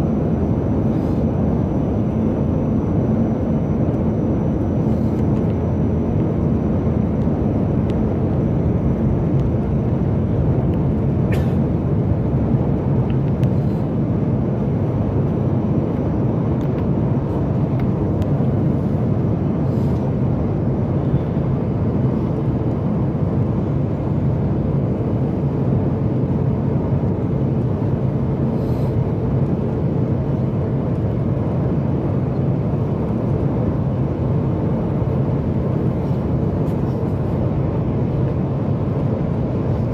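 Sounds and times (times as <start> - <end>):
airflow rush in cabin: 0.0 - 39.9.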